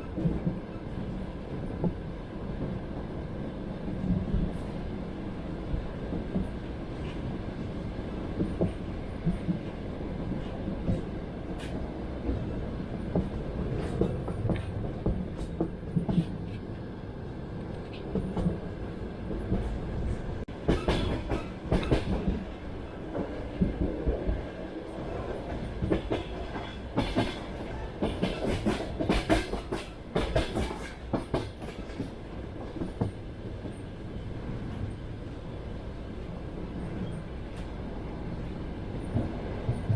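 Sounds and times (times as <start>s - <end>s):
moving train rumble: 0.0s - 39.9s
train wheels clattering: 20.5s - 24.4s, 25.5s - 33.8s.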